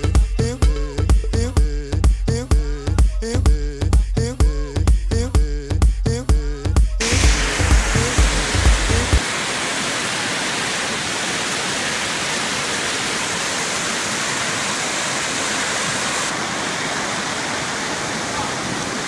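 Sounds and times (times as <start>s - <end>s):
dance music with a beat: 0.0s - 9.2s
fast-flowing floodwater rushing: 7.0s - 19.0s.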